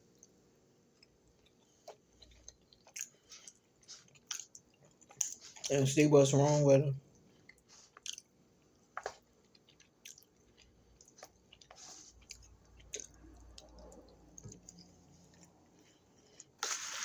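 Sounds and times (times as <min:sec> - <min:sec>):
person chewing: 0:01.0 - 0:17.0.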